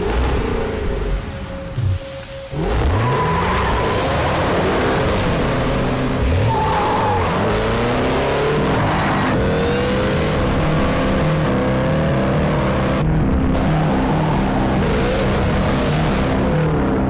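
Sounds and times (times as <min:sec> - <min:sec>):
car engine accelerating hard: 0:02.5 - 0:17.0
tyre squeal: 0:06.3 - 0:07.9.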